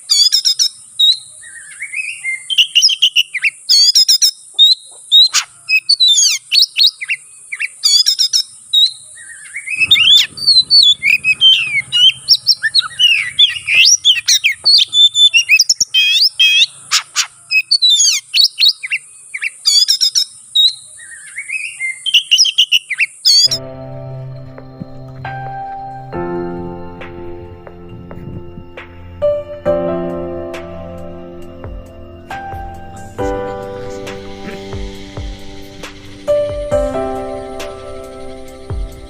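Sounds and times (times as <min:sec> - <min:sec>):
magpie-robin singing: 0:00.0 - 0:23.6
steady high hiss: 0:09.7 - 0:15.8, 0:23.8 - 0:39.0
soft mallet music: 0:23.6 - 0:39.0.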